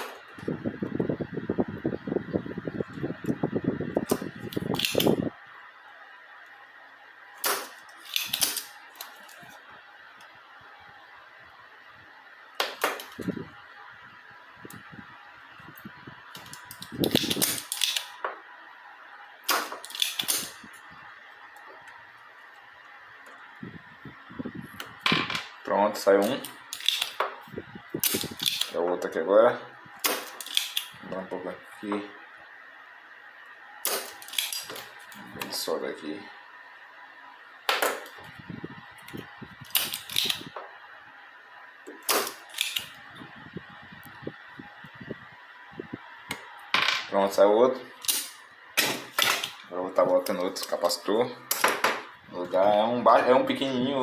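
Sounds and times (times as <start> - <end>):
faint high hum: 0.0 - 54.0
tools clicking on circuit board: 7.4 - 9.2, 19.5 - 20.5, 26.2 - 27.2.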